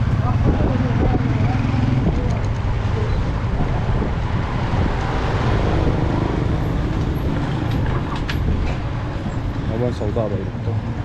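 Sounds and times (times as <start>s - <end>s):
motorcycle engine running: 0.0s - 4.4s
street traffic noise: 0.0s - 11.0s.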